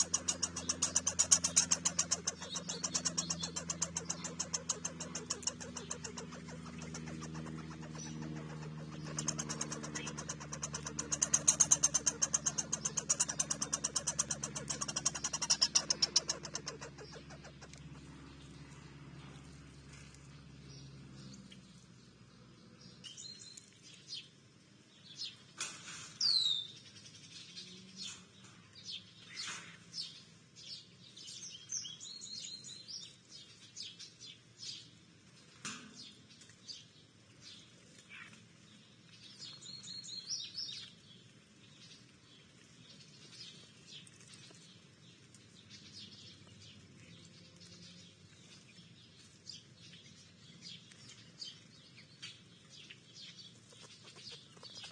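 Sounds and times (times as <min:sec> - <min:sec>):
songbirds chirping: 0:00.0 - 0:54.9.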